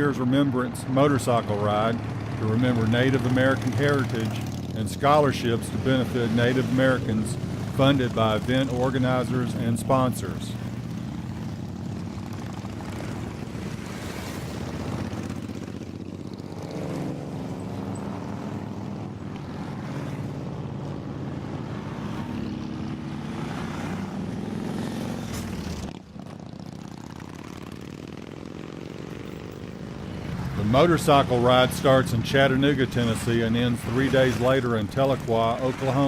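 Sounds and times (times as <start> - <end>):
engine and road noise drone: 0.0 - 36.0
motorcycles passing: 0.0 - 36.0.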